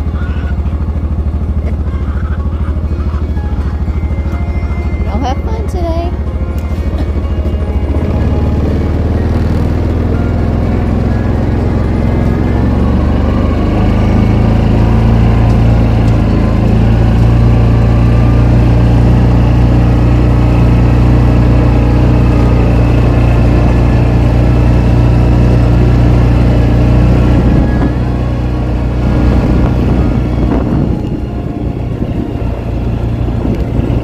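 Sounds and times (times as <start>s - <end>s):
vehicle engine humming: 0.0s - 34.0s.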